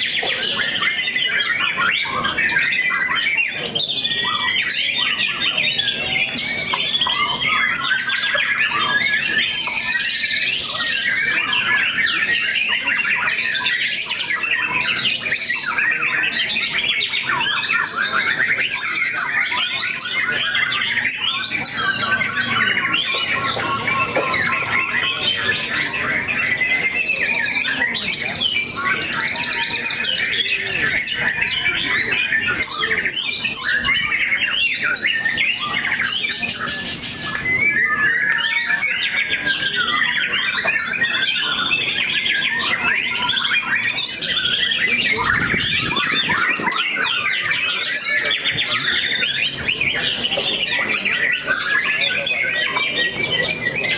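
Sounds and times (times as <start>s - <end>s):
birds singing in chorus: 0.0s - 53.9s
harsh bird rasp: 35.5s - 37.6s.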